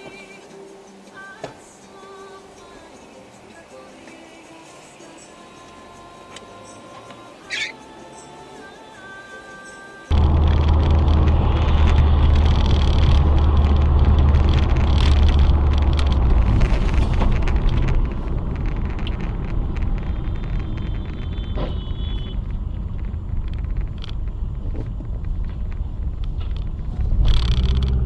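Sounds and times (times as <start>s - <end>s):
car engine and tyre rumble: 10.1s - 28.0s.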